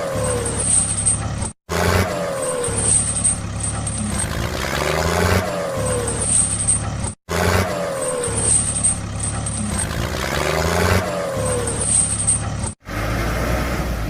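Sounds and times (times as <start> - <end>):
truck engine rumble: 0.0 - 14.0.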